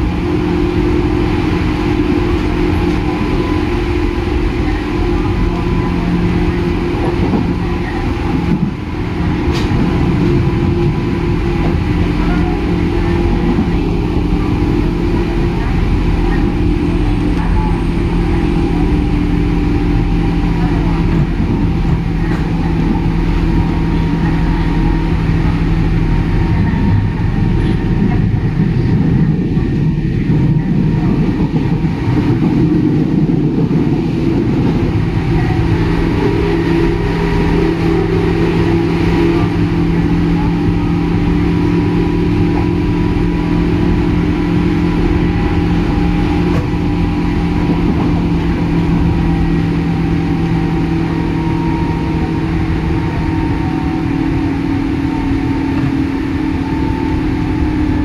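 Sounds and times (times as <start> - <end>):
electric train running hum: 0.0 - 58.0.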